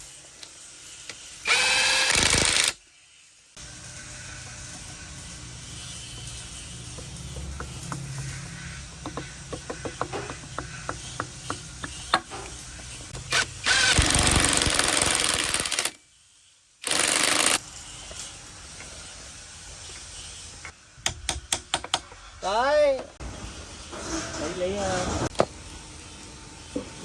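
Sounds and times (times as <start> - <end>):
power tool running: 1.4 - 2.8, 13.1 - 16.0, 16.8 - 17.6
hand tools clicking and tapping: 6.9 - 13.3, 21.0 - 22.2.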